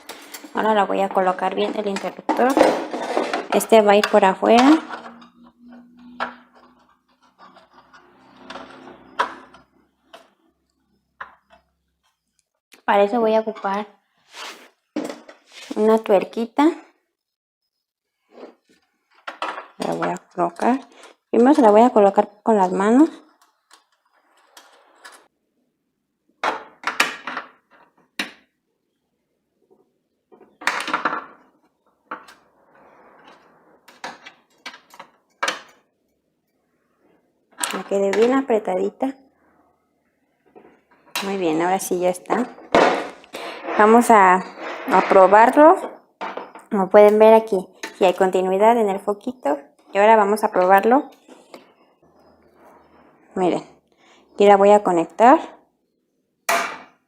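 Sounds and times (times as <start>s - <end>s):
metal scraping: 0.0s - 10.5s, 42.4s - 46.0s.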